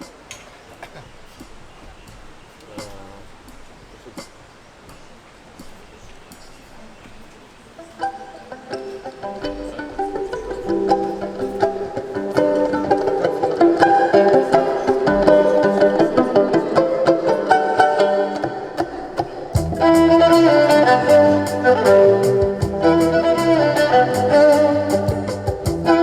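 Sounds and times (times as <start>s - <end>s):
plucked strings: 0.0s - 26.0s
violin melody: 6.6s - 26.0s
bass and drums: 19.5s - 26.0s.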